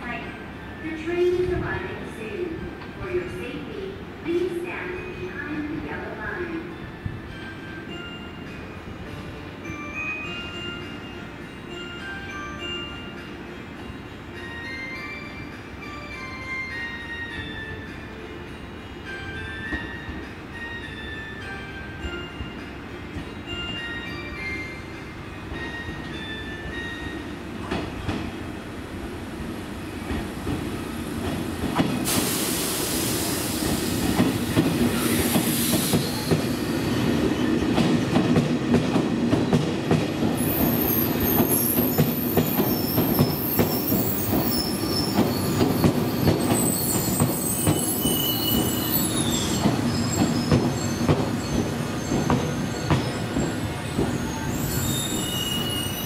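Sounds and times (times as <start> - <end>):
train clacking over rail joints: 27.6 - 28.4, 30.0 - 32.6, 33.5 - 55.0
high-pitched brake squealing: 40.5 - 56.0.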